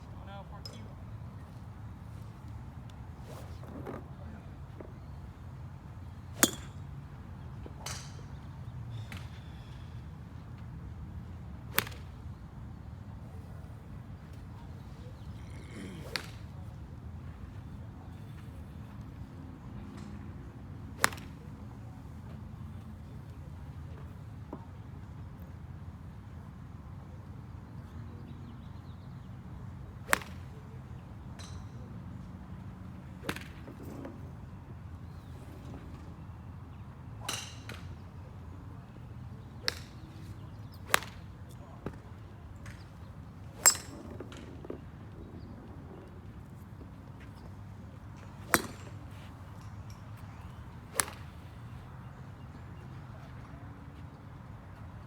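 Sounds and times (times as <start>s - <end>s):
golf clubs striking balls: 6.3s - 6.9s, 15.4s - 16.7s, 21.0s - 22.0s, 30.1s - 30.7s, 39.6s - 42.0s, 42.6s - 44.8s, 46.8s - 51.9s
golf club striking ball: 6.4s - 6.8s, 21.0s - 21.2s, 30.1s - 30.3s, 40.8s - 41.1s, 43.6s - 44.0s, 48.5s - 49.0s, 50.9s - 51.2s.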